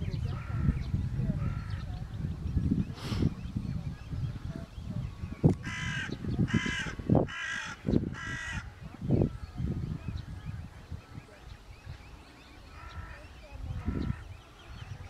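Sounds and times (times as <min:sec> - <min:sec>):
bird cawing: 0:05.6 - 0:08.7.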